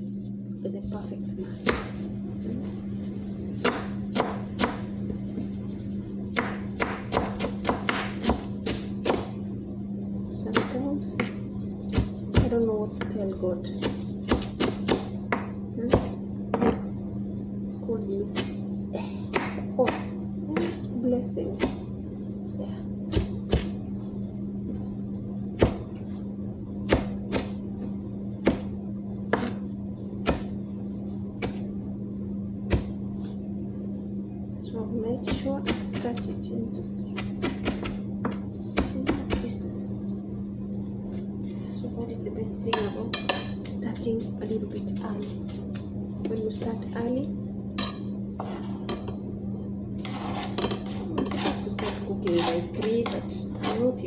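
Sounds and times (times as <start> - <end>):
low hum: 0.0 - 54.0
knife chopping on cutting board: 3.6 - 5.5, 6.3 - 9.4, 13.8 - 16.9, 19.3 - 20.8, 30.2 - 30.5, 31.4 - 31.7, 37.2 - 39.4.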